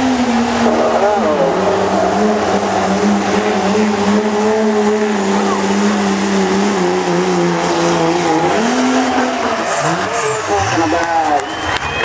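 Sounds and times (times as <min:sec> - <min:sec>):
diesel engine under heavy load: 0:00.0 - 0:12.0.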